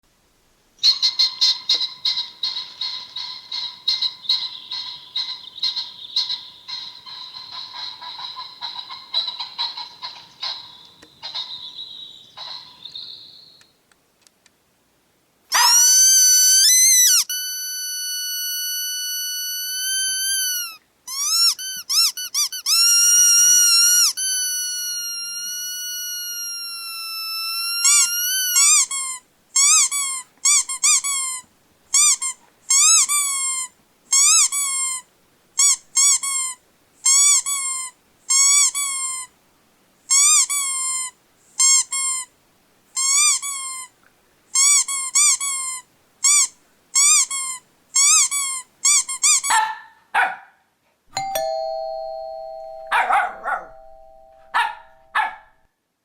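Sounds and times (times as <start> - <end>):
high-pitched squeaking: 15.5 - 31.4, 52.8 - 55.4.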